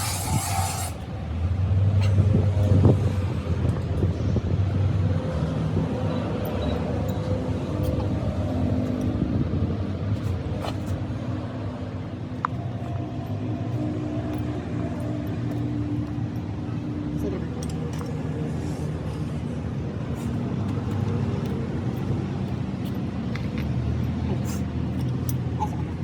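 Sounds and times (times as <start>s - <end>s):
engine humming steadily: 0.0s - 26.0s.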